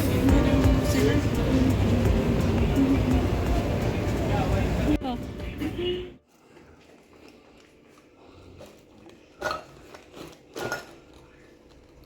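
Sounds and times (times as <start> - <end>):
dishes and cutlery clinking: 9.4 - 11.2.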